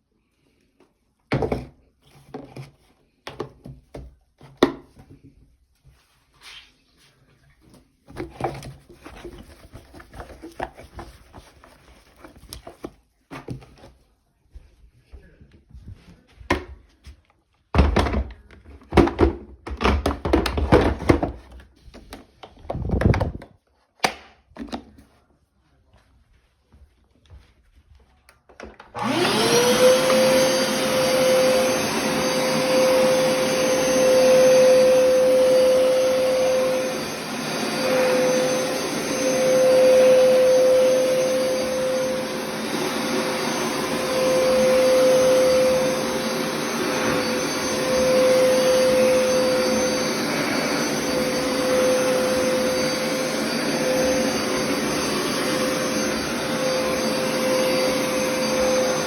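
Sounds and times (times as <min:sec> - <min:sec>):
floor cleaner suction motor whine: 0:28.5 - 0:59.0.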